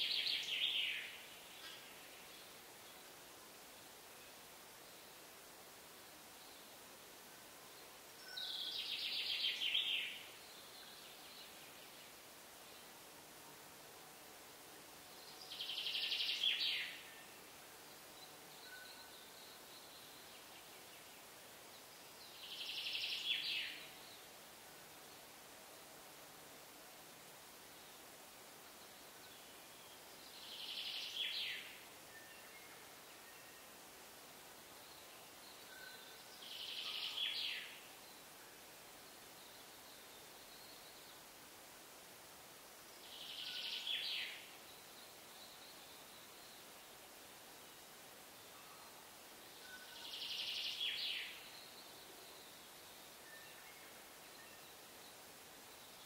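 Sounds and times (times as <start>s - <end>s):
songbird trill: 0.0s - 3.2s, 7.7s - 13.0s, 15.1s - 24.4s, 28.6s - 33.9s, 34.6s - 41.3s, 42.9s - 56.0s
faint steady hiss: 0.0s - 56.0s
faint whistled bird calls: 18.6s - 20.4s, 34.9s - 37.8s, 43.0s - 46.7s, 49.6s - 55.2s.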